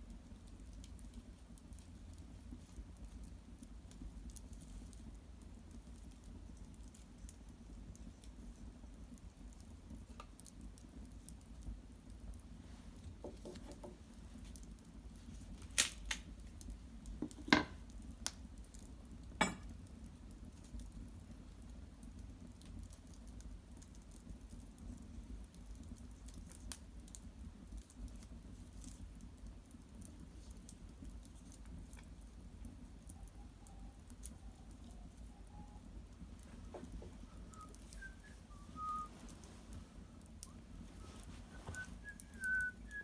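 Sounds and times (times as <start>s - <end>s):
wood fire crackling: 0.0s - 43.0s
sharp pops of burning wood: 13.1s - 33.2s.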